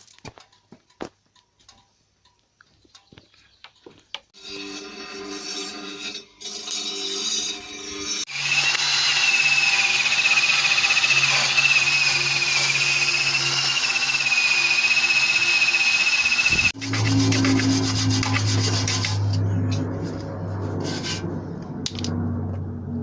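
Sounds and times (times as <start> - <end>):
power tool whining: 6.4 - 19.2.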